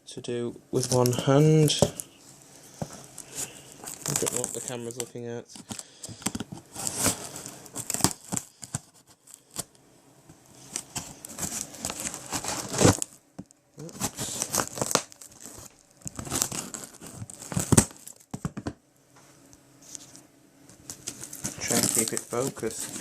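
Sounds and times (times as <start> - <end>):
cardboard crinkling: 0.8 - 9.7, 10.6 - 13.2, 13.8 - 18.7, 20.8 - 23.0
packing tape tearing: 3.2 - 9.7, 10.7 - 13.2, 13.8 - 18.4, 20.8 - 23.0.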